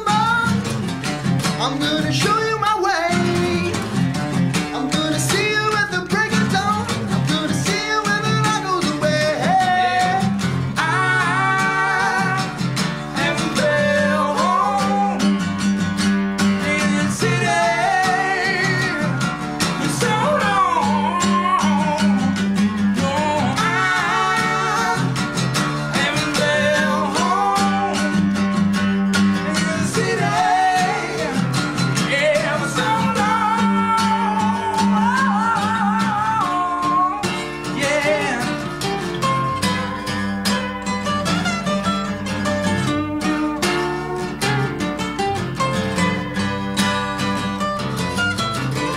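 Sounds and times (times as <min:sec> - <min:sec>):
strummed acoustic guitar: 0:00.0 - 0:48.9
person singing: 0:04.7 - 0:15.4, 0:16.5 - 0:28.4, 0:29.4 - 0:38.8.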